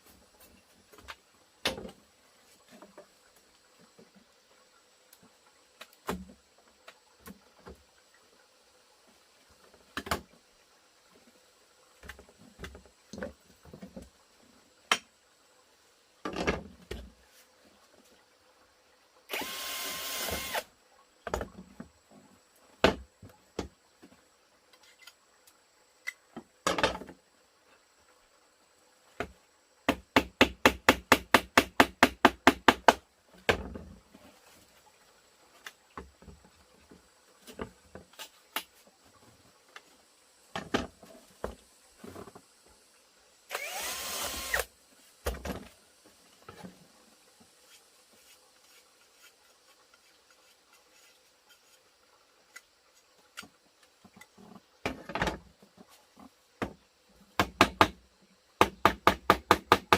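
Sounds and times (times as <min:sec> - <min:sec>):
rapid strikes on timber: 0:29.9 - 0:33.0, 0:57.4 - 0:58.0, 0:58.6 - 0:59.9.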